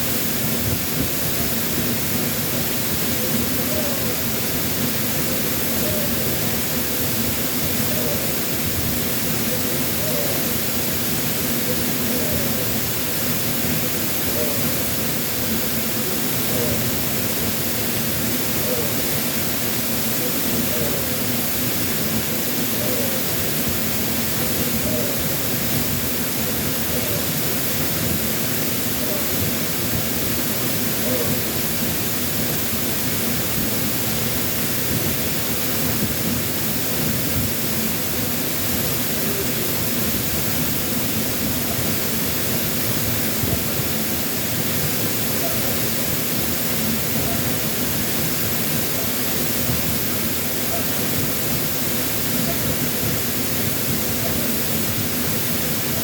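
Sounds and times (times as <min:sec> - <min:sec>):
waterfall pouring heavily: 0:00.0 - 0:56.0
faint human voice: 0:20.0 - 0:23.6, 0:26.3 - 0:28.2, 0:30.9 - 0:31.6.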